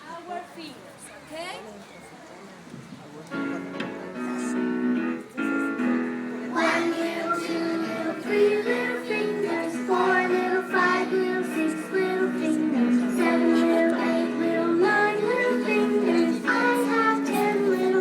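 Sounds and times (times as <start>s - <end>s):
held instrumental notes: 3.4s - 18.0s
children and woman singing: 6.5s - 18.0s.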